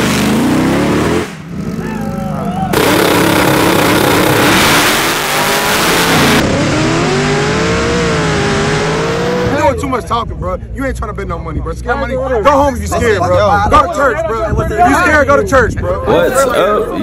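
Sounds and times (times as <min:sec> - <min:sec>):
car engines revving: 0:00.0 - 0:11.5.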